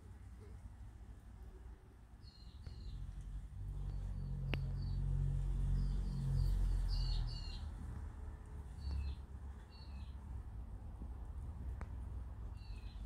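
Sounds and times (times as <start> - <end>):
small birds chirping: 1.4 - 10.5, 11.6 - 13.0.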